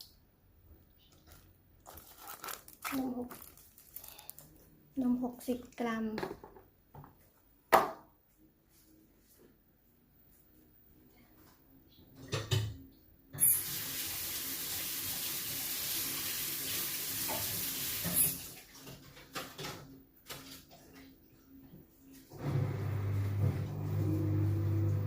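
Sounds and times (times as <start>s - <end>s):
stream of liquid running: 13.4s - 18.7s.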